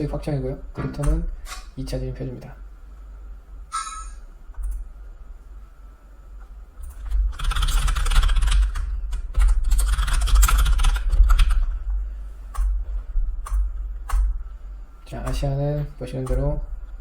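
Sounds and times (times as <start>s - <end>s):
keyboard typing: 6.8s - 11.7s.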